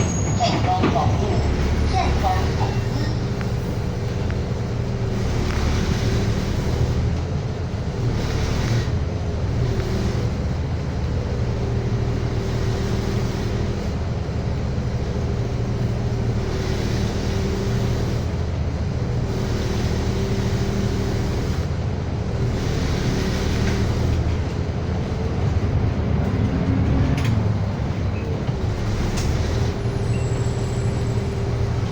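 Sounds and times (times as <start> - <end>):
bus engine drone with whine: 0.0 - 31.9
road noise: 0.0 - 31.9.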